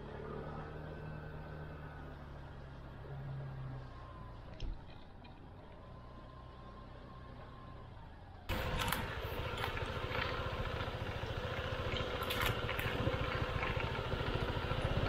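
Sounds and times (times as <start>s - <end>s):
scooter engine idling: 8.5s - 15.0s.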